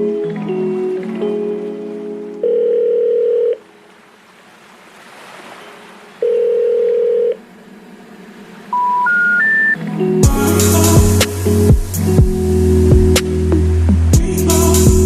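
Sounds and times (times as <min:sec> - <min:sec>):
long electronic tones: 0:08.7 - 0:15.0
soft rushing hiss: 0:10.2 - 0:15.0.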